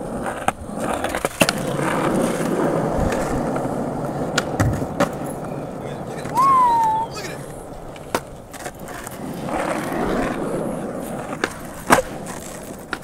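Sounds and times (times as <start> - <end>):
skateboard clacks and knocks: 0.0 - 13.0
skateboard wheels rolling: 0.0 - 13.0.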